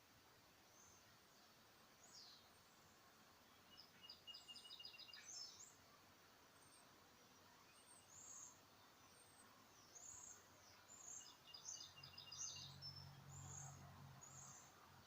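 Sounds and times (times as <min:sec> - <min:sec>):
bird chirping: 0:03.5 - 0:05.8, 0:07.5 - 0:14.8.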